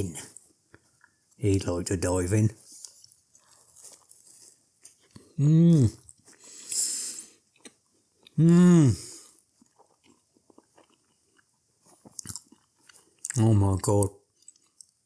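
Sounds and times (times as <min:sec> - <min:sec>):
man chewing: 0:00.1 - 0:01.8, 0:02.6 - 0:15.0
man humming mmm: 0:05.4 - 0:06.0, 0:08.4 - 0:09.2
breathy hiss: 0:05.8 - 0:07.4.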